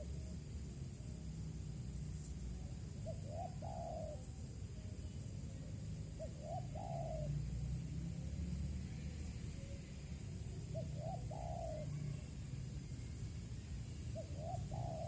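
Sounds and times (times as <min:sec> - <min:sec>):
dove cooing: 0:03.0 - 0:04.5, 0:06.0 - 0:07.6, 0:10.4 - 0:12.3, 0:14.0 - 0:15.0.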